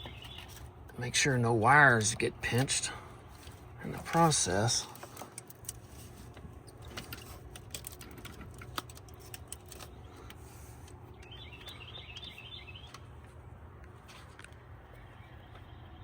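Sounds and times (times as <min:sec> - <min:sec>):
bird chirping: 0:00.0 - 0:00.6, 0:11.0 - 0:13.1, 0:14.9 - 0:16.0
clicks and taps of parts: 0:04.9 - 0:11.8.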